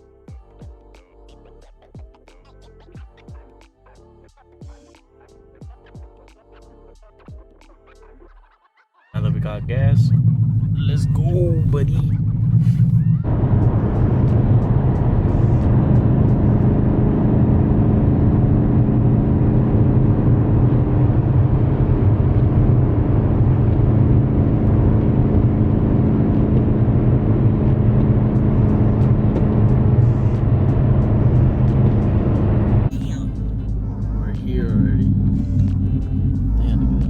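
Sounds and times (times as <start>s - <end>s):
car engine cruising: 9.2s - 37.0s.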